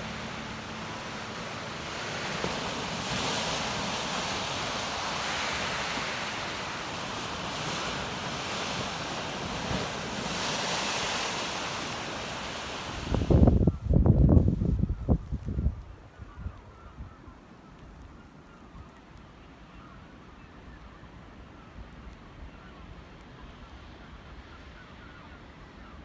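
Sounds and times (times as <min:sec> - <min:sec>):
surf washing ashore: 0:00.0 - 0:14.6
wind: 0:00.0 - 0:26.0
wind buffeting microphone: 0:12.8 - 0:17.1.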